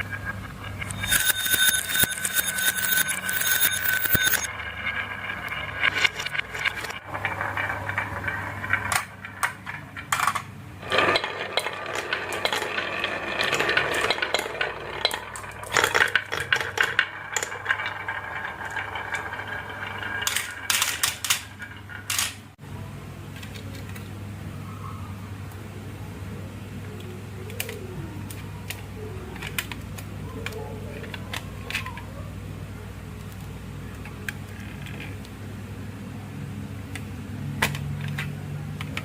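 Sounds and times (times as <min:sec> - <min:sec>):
marbles rolling down marble run: 0:00.0 - 0:22.5.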